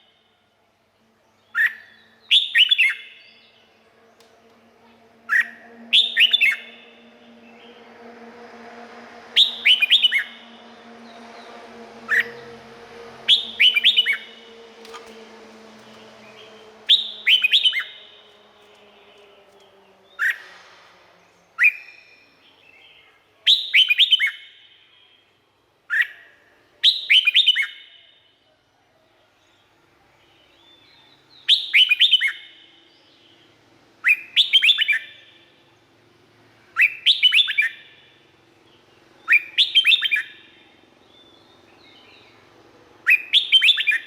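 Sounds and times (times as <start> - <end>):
bird singing whistled notes: 1.4 - 3.7, 5.3 - 7.7, 9.4 - 12.6, 13.2 - 14.6, 16.1 - 18.3, 21.4 - 25.2, 25.9 - 28.4, 30.2 - 33.4, 34.0 - 35.6, 36.8 - 42.4, 43.0 - 44.0.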